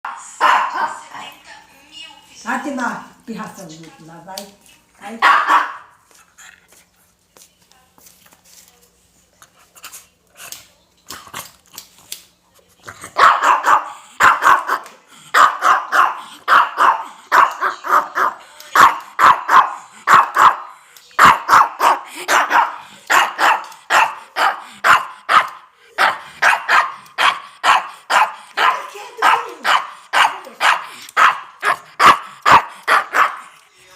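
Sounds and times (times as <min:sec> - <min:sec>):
dog barking: 0:00.4 - 0:01.0, 0:05.2 - 0:05.9, 0:13.2 - 0:33.5.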